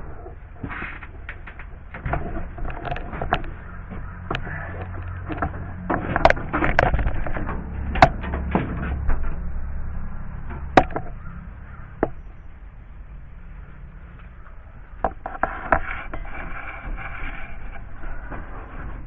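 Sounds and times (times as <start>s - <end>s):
handling noise: 0.0s - 12.4s
low rumble: 0.0s - 19.0s.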